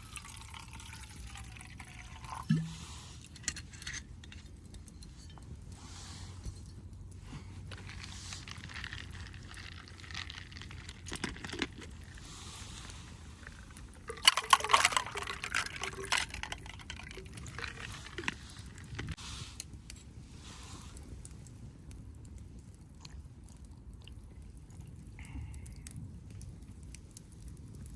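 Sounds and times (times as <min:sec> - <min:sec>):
drink pouring into a cup: 0:00.0 - 0:03.3, 0:12.8 - 0:18.4.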